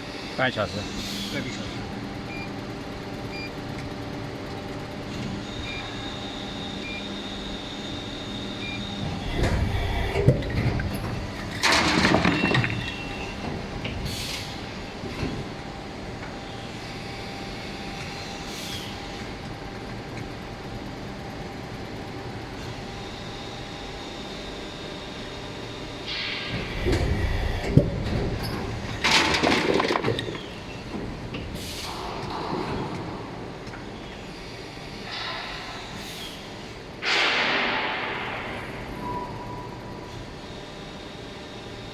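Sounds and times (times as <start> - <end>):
machine running hum: 0.0 - 41.9
loud rush of machine noise: 26.0 - 30.0.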